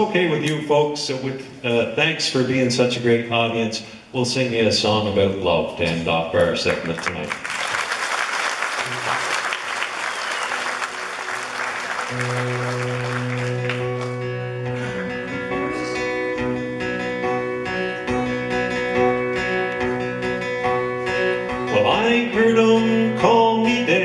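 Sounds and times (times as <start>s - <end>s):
audience applause: 6.7s - 14.3s
country band playing: 10.4s - 24.0s
picked acoustic guitar: 11.0s - 24.0s.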